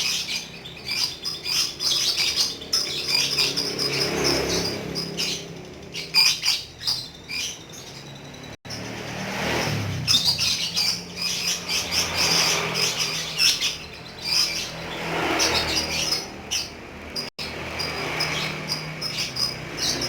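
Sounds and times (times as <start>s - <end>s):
bird chattering chirps and squeaks: 0.0s - 20.0s.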